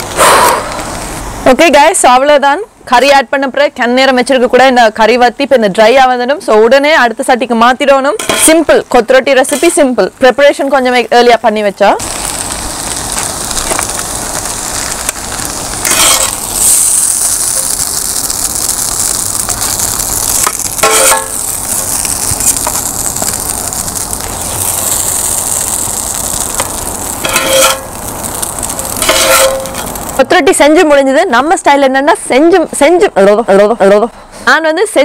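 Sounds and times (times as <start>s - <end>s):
food sizzling on a griddle: 0.2s - 1.5s, 8.2s - 30.9s.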